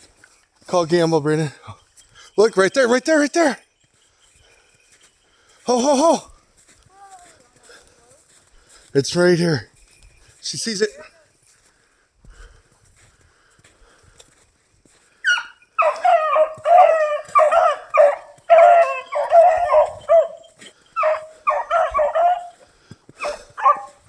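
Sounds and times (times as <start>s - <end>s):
dog yelping and barking: 15.2s - 22.6s, 23.2s - 24.0s.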